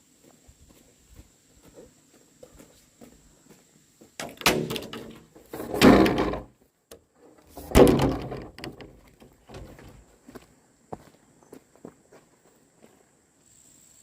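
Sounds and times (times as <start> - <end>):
loud knocks with clatter: 4.2 - 6.5, 7.6 - 9.7.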